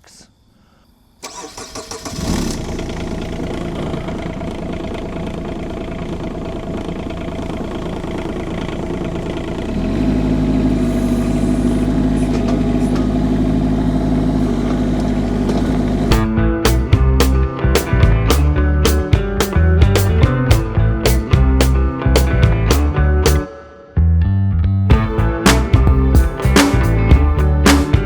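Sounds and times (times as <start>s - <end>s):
diesel engine idling: 1.2s - 19.0s.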